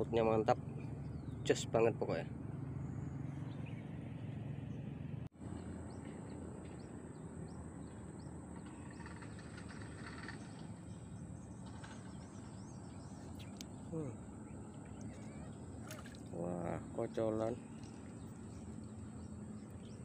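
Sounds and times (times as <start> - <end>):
outdoor background noise: 0.0 - 20.0
small birds chirping: 5.6 - 20.0.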